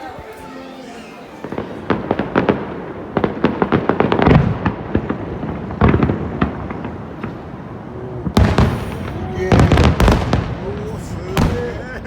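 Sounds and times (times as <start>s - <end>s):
fireworks bangs and crackling: 1.5s - 12.0s
deep firework boom: 8.2s - 11.8s.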